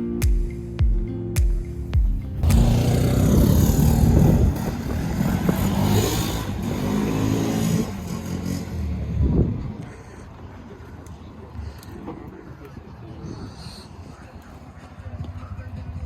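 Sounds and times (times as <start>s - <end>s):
atv engine revving: 2.4s - 9.6s.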